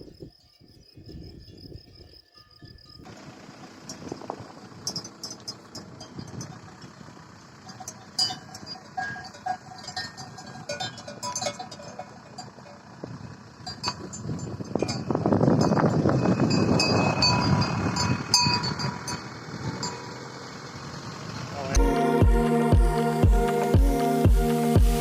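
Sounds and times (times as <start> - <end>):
outdoor background noise: 0.0 - 25.0
livestock bells clanking: 2.2 - 20.4.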